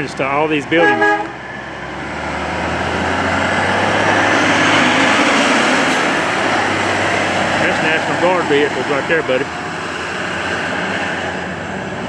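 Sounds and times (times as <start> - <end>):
road noise: 1.2 - 12.0
heavy truck driving past: 1.8 - 9.2.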